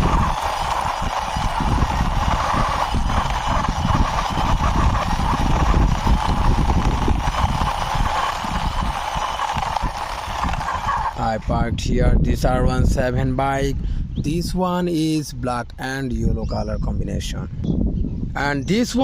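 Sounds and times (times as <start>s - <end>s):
toy wheels rolling and scraping on wall: 0.0s - 11.4s.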